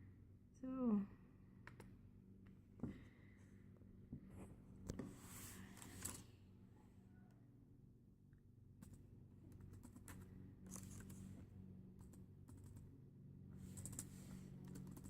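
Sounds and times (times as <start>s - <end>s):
low steady hum: 0.0s - 15.0s
keyboard typing and clicking: 12.0s - 12.9s, 13.7s - 15.0s.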